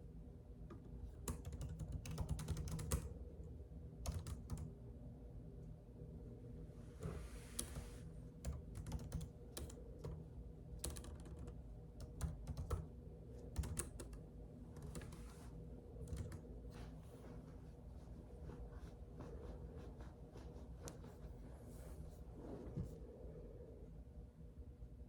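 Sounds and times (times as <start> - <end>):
keyboard typing: 1.0 - 3.1, 4.1 - 4.7, 7.6 - 10.2, 10.8 - 16.5
soft brushing noise: 6.8 - 8.1, 16.6 - 23.3.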